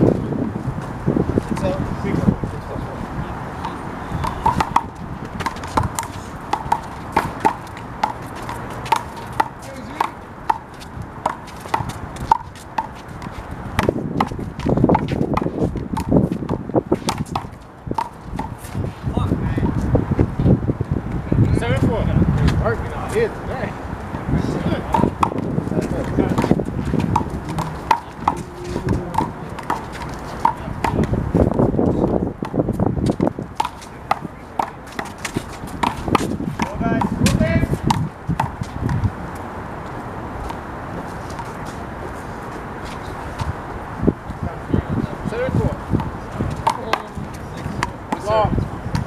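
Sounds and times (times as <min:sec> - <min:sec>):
rubber ball bouncing: 0:03.6 - 0:18.6, 0:24.8 - 0:31.6, 0:32.4 - 0:39.1
handball slapping off wall and pavement: 0:03.6 - 0:19.0, 0:24.1 - 0:39.4, 0:45.5 - 0:49.0
sneaker scuffs: 0:03.6 - 0:20.0, 0:24.9 - 0:43.6
quick footsteps: 0:03.6 - 0:21.2, 0:24.0 - 0:44.4.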